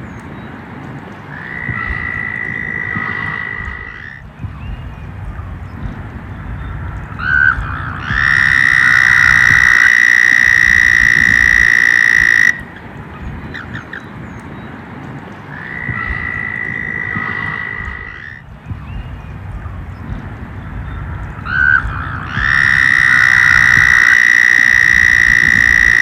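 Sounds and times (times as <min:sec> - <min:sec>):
frog trilling: 0:01.3 - 0:04.3, 0:07.2 - 0:12.8, 0:15.5 - 0:18.5, 0:21.5 - 0:26.0
low background rumble: 0:01.6 - 0:09.9, 0:15.9 - 0:24.1.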